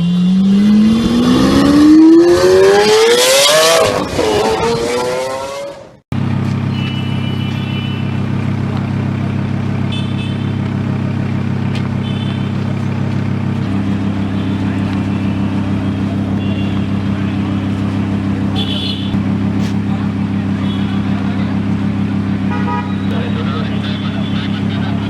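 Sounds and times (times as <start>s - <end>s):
sports car engine accelerating: 0.0s - 25.0s
engine idling: 6.1s - 25.0s.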